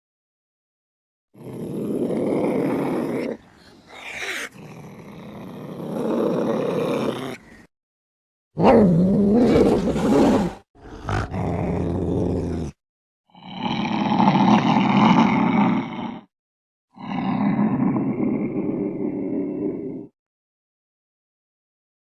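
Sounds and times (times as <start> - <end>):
cat growling and yowling: 1.6 - 7.4.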